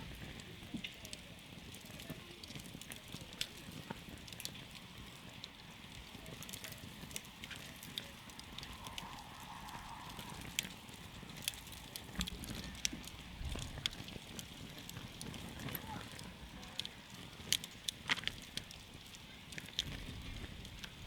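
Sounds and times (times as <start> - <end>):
campfire crackling and popping: 0.0 - 21.0
low rush of burning: 0.0 - 21.0.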